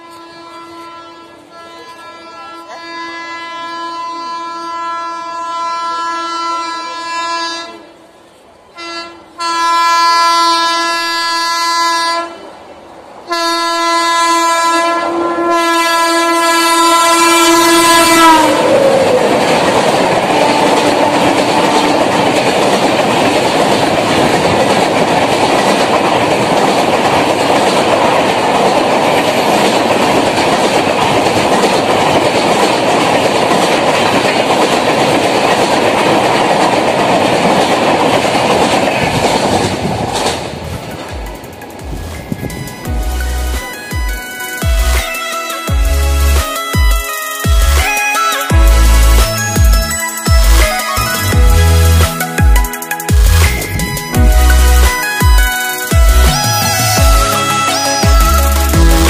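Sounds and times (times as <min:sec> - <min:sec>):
locomotive horn blasts: 0:00.0 - 0:07.9, 0:08.8 - 0:12.4, 0:13.3 - 0:18.7
train coaches rushing past: 0:00.0 - 0:59.0.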